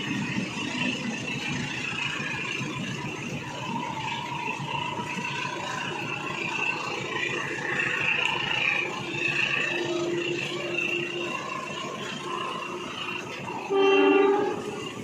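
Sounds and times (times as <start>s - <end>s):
train running whir and rush: 0.0s - 15.0s
steady hum: 7.2s - 15.0s.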